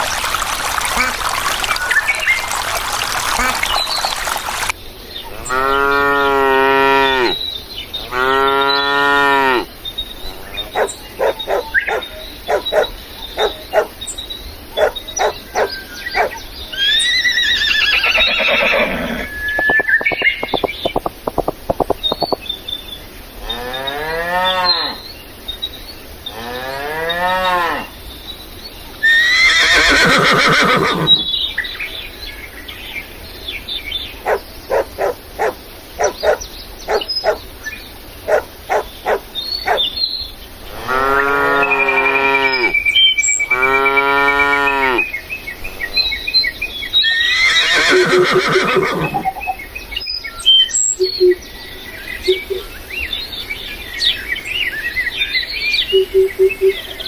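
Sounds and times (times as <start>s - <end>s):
hissing noise: 19.0s - 22.4s
rapid clicking: 19.6s - 22.4s.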